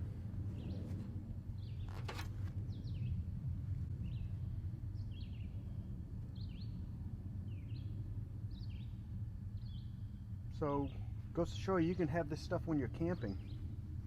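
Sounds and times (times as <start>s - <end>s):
low rumble: 0.0s - 14.0s
bird chirping: 5.0s - 5.7s, 7.5s - 11.1s.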